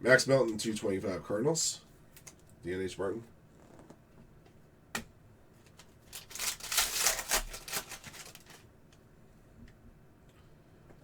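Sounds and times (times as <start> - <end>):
cards clicking and rustling: 5.7 - 8.6.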